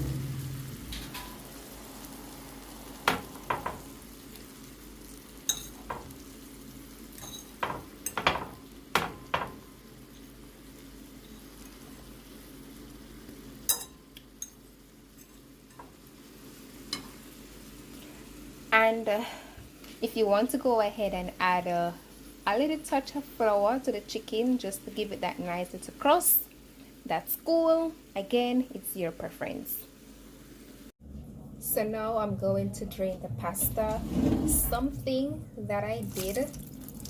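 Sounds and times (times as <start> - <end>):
chicken sizzling in a pan: 0.0 - 30.9, 36.0 - 37.0
utensil knocking on pan: 3.0 - 3.9, 7.6 - 9.7.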